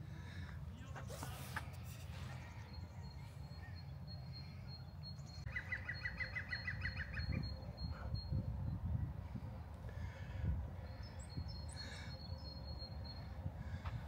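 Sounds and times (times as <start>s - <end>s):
songbird trilling: 0.8s - 8.4s.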